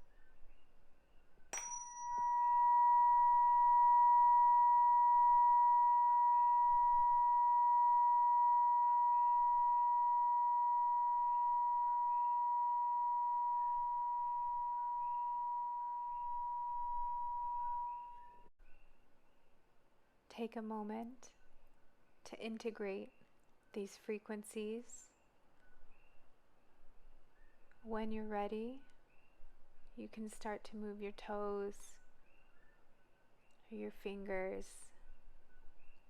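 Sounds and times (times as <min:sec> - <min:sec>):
tuning fork ringing pure tone: 0:01.6 - 0:18.5.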